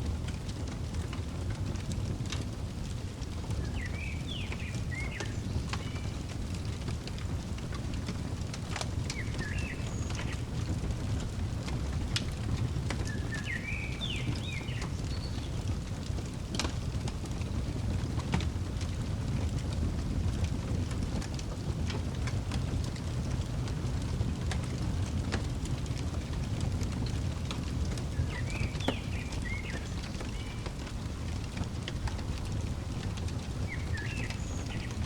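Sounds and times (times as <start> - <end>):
fireplace crackling and popping: 0.0 - 35.0
songbird chirping: 3.4 - 6.7, 8.7 - 15.6, 28.0 - 35.0.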